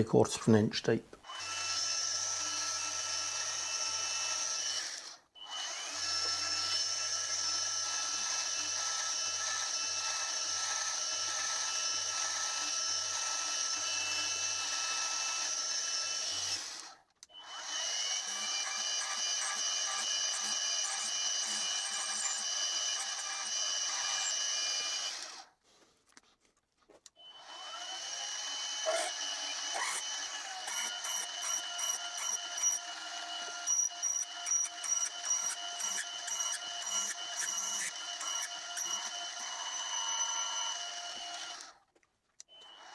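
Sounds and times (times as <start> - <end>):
drill boring into metal: 1.3 - 16.8, 17.4 - 25.3, 27.6 - 41.7
milling spindle whine: 18.2 - 25.0, 28.8 - 41.5
irregular ticks: 33.7 - 39.1.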